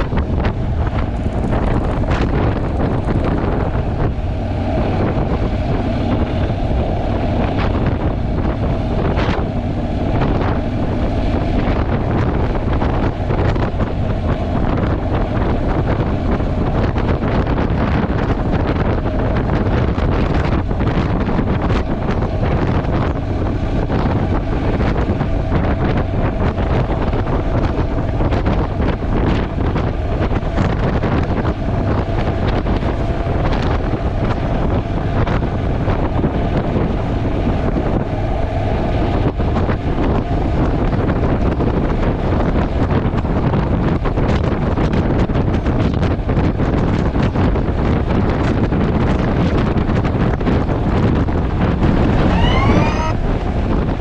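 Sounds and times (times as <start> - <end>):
motorcycle engine running: 0.0 - 38.3
wind buffeting microphone: 0.0 - 54.0.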